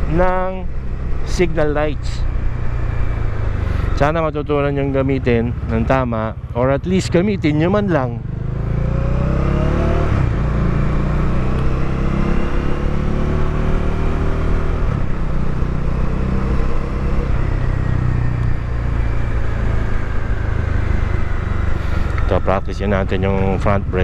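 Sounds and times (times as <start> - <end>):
motorcycle engine running: 0.0 - 24.0
road rumble: 0.0 - 24.0
wind: 0.0 - 24.0.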